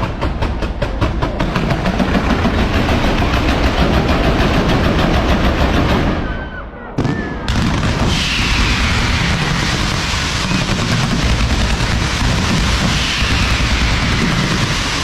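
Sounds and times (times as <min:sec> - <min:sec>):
fireworks bangs and crackles: 0:00.0 - 0:06.4, 0:07.0 - 0:15.0
firework whistles: 0:06.1 - 0:15.0.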